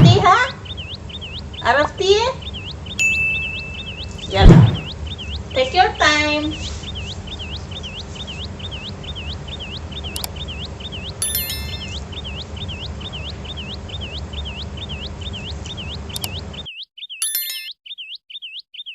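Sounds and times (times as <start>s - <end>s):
steady low hum: 0.0s - 16.7s
repeating high chirp: 0.0s - 18.9s
short clicks: 10.1s - 10.4s, 16.1s - 16.4s.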